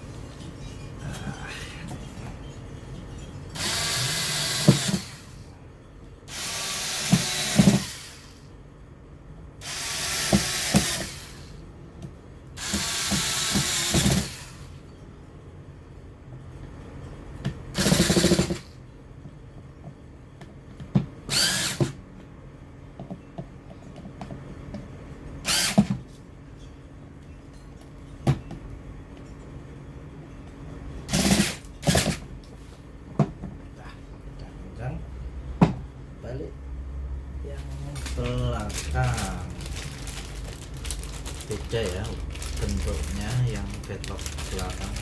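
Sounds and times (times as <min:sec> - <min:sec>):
power drill driving bolts: 0:03.6 - 0:05.3, 0:06.3 - 0:08.3, 0:09.6 - 0:11.4, 0:12.6 - 0:14.6, 0:17.8 - 0:18.6, 0:21.3 - 0:22.0, 0:25.4 - 0:25.9, 0:31.1 - 0:32.2.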